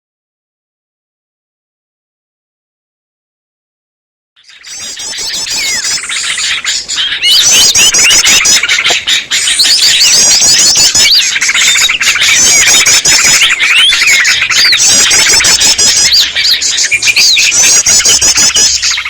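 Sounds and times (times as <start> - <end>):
bulbuls chattering: 4.4 - 19.0
songbirds chorus: 4.4 - 19.0.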